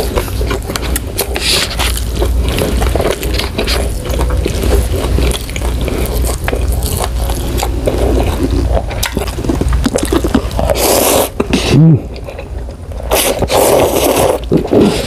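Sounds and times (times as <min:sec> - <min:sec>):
chewing with wet mouth clicks: 0:00.0 - 0:14.8.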